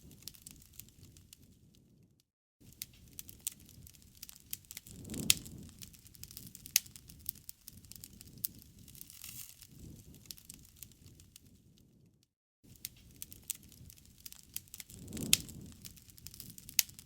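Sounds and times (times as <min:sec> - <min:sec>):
sharp pops of fire: 0:00.0 - 0:01.9, 0:02.6 - 0:12.0, 0:12.7 - 0:17.0
campfire crackling: 0:00.0 - 0:02.0, 0:02.6 - 0:12.1, 0:12.7 - 0:17.0
low rush of flame: 0:02.7 - 0:12.1, 0:12.7 - 0:17.0.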